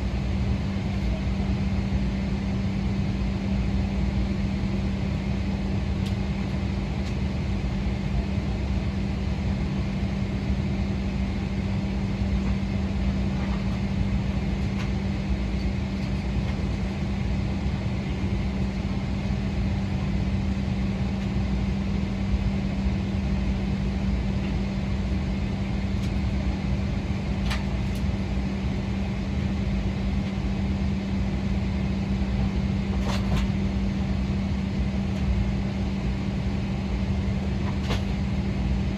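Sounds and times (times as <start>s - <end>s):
aircraft cabin hum and rumble: 0.0s - 38.9s.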